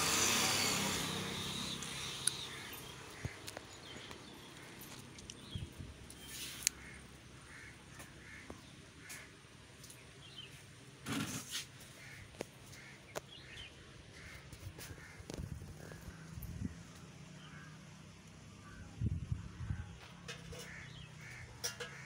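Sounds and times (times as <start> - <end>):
short bird calls: 1.6 - 4.1.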